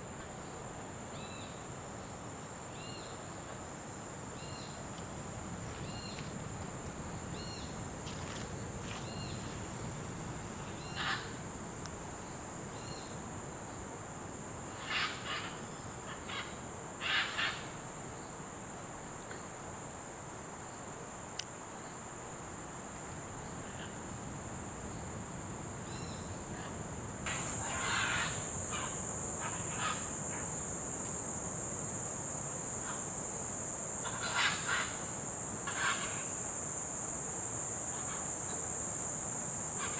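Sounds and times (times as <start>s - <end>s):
high-pitched insect drone: 4.0s - 11.4s, 27.3s - 39.9s.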